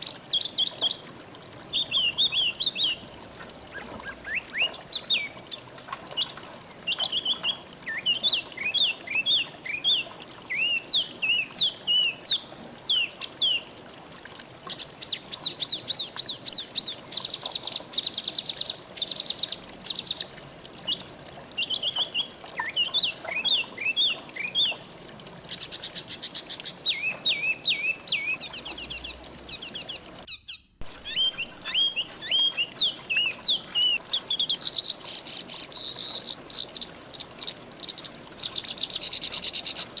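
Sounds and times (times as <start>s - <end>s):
songbirds singing: 0.0s - 13.7s, 14.6s - 40.0s
buzzy bird trills: 28.2s - 34.4s.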